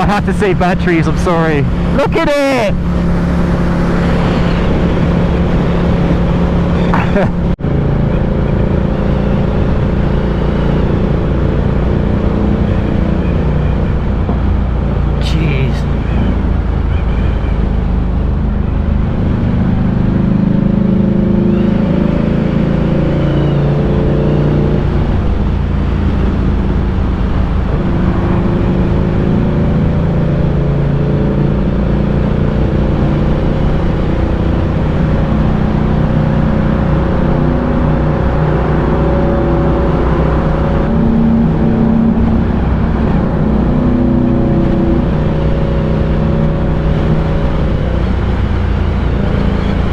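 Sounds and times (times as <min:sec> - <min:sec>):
motorcycle engine revving: 0:00.0 - 0:15.1.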